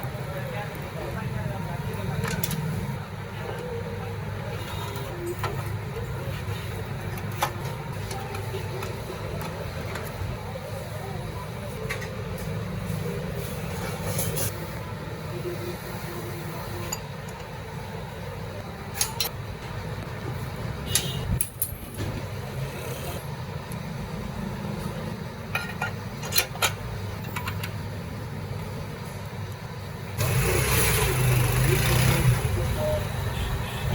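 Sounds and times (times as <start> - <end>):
motorcycle engine running: 30.2 - 32.9.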